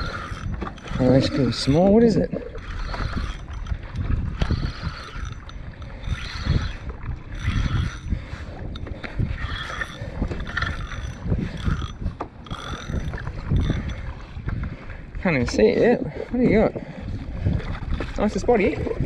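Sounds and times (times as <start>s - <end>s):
fishing reel cranking: 0.0s - 14.4s.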